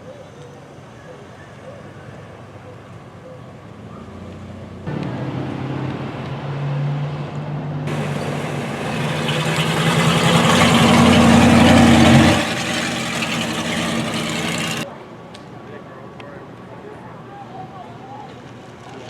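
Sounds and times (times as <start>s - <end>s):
car engine revving: 7.9s - 14.8s.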